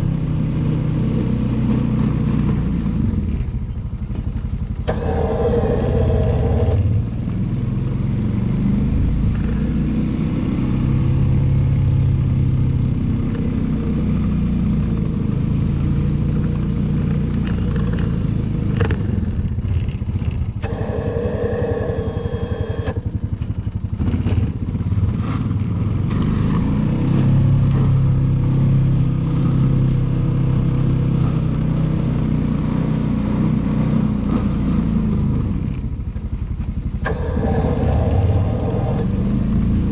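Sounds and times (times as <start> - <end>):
snow clearing machine engine: 0.0 - 3.0, 4.1 - 11.3, 16.1 - 35.4, 36.6 - 39.9
higher machine tone: 4.9 - 7.4, 20.6 - 23.5, 37.0 - 39.7.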